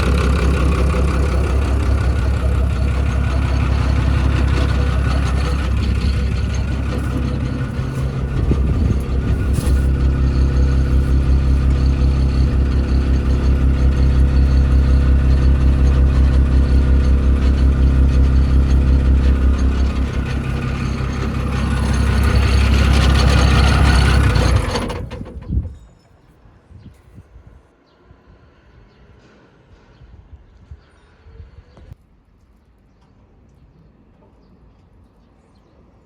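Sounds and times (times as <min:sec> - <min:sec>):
excavator diesel engine running: 0:00.0 - 0:25.8.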